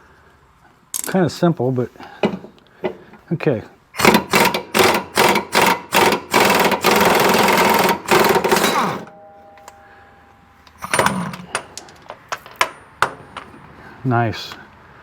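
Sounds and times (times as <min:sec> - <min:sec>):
air impact wrench hammering: 0:04.0 - 0:09.8, 0:10.7 - 0:13.6.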